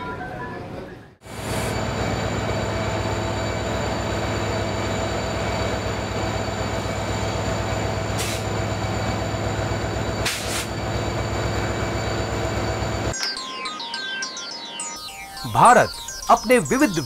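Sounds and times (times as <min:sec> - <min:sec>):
passenger train rumbling: 0:00.0 - 0:13.1
short hiss: 0:10.2 - 0:10.7.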